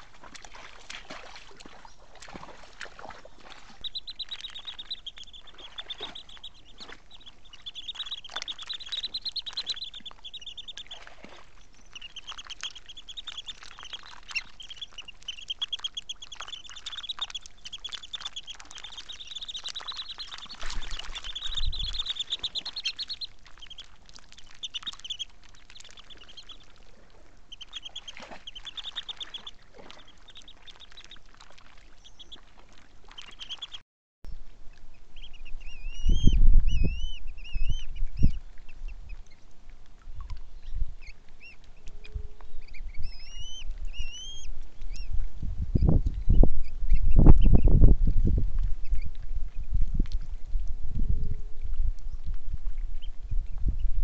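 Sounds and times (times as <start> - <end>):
birds chattering: 3.2 - 26.9, 27.5 - 31.2.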